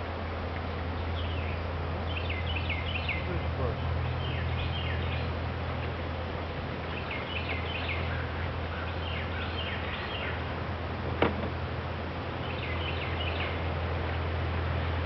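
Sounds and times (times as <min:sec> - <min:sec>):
steady low hum: 0:00.0 - 0:15.0
songbird chirping: 0:00.9 - 0:06.0, 0:06.8 - 0:10.5, 0:12.3 - 0:13.7.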